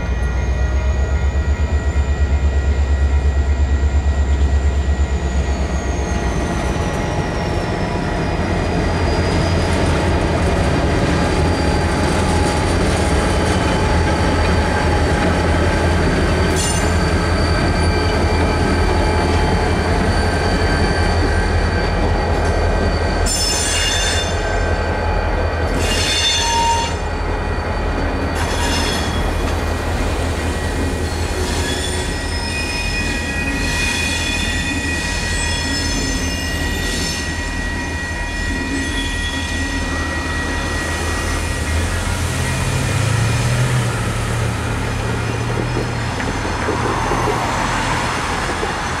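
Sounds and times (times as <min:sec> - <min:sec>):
wheel squeals: 0:00.0 - 0:49.0
crossing bell ringing: 0:07.1 - 0:29.6.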